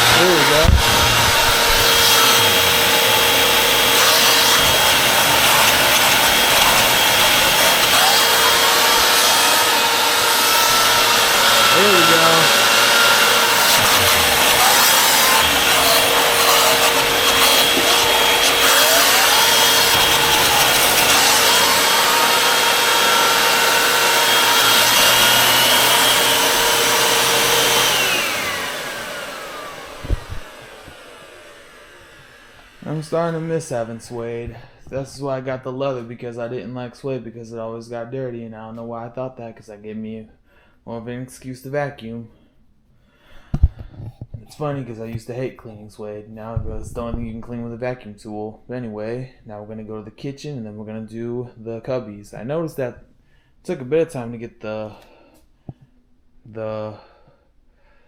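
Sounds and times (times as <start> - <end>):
vacuum cleaner running: 0.0 - 34.3.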